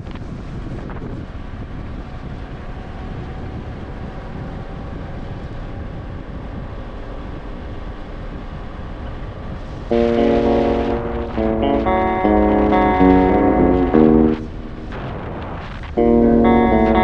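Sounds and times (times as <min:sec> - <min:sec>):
vehicle road and engine rumble: 0:00.0 - 0:09.9
wind buffeting microphone: 0:00.0 - 0:17.0.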